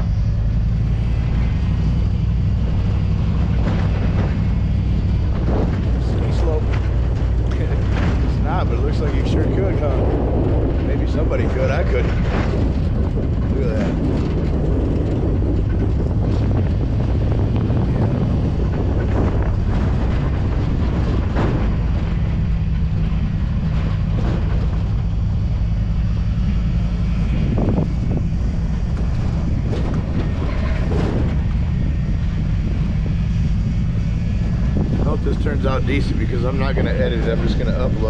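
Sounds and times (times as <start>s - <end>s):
pickup truck engine rumble: 0.0s - 38.0s
wind buffeting microphone: 0.0s - 38.0s.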